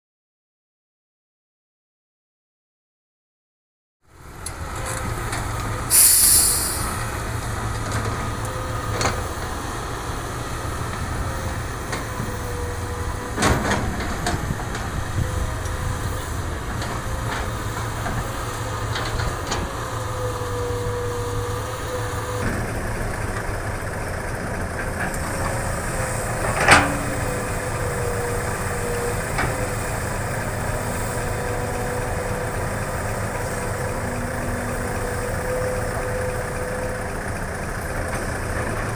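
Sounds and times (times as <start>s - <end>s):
excavator diesel engine running: 4.1s - 38.9s
hydraulic whine: 4.4s - 9.0s
short hiss: 5.9s - 7.1s.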